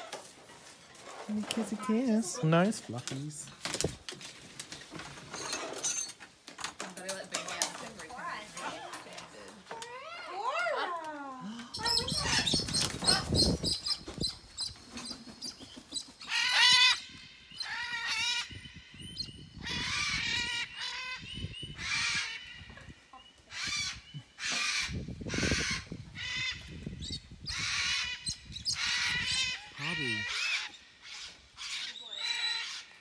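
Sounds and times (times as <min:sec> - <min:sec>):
parrots squawking: 0:27.5 - 0:33.0.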